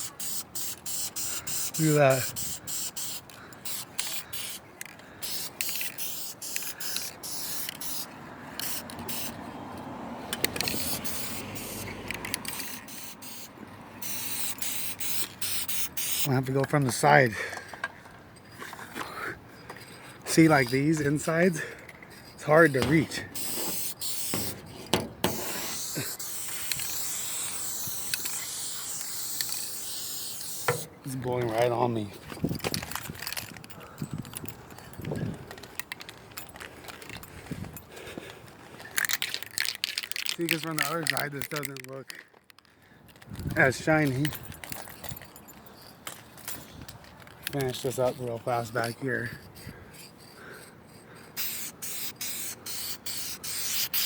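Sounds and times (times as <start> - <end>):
aerosol spray paint hissing: 0.0 - 4.6, 5.2 - 9.4, 10.6 - 16.3, 22.6 - 30.9, 51.4 - 54.0.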